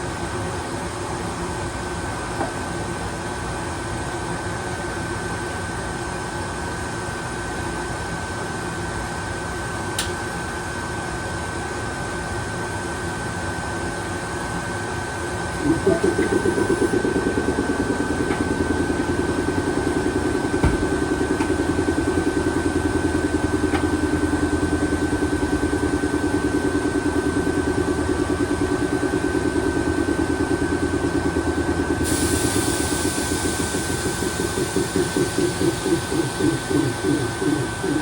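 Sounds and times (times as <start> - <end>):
electric train machinery hum: 11.5 - 38.0
high whine: 15.4 - 38.0
hiss: 32.0 - 38.0.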